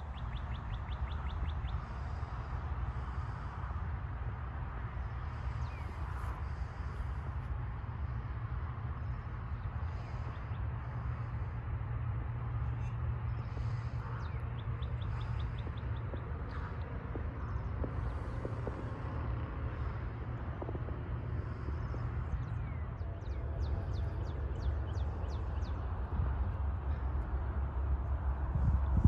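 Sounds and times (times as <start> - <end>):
birds chirping: 0.0 - 3.5, 5.0 - 7.6, 12.4 - 29.0
distant road traffic rumble: 0.0 - 29.0.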